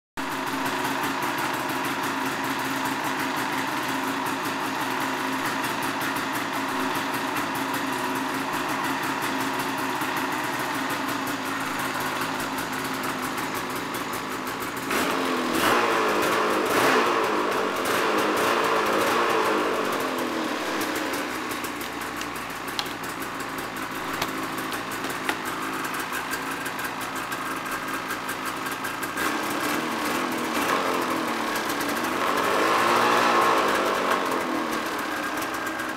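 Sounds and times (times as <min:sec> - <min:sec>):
snowmobile engine idling and revving: 0:00.2 - 0:35.9.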